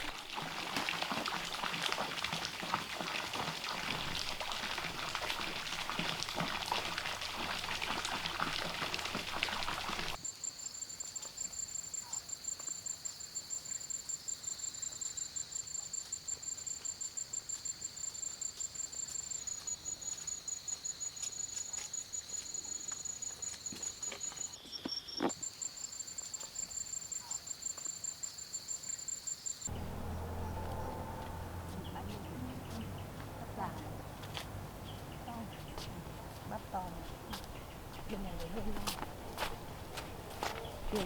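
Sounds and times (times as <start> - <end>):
insect chirping trill: 9.6 - 29.8.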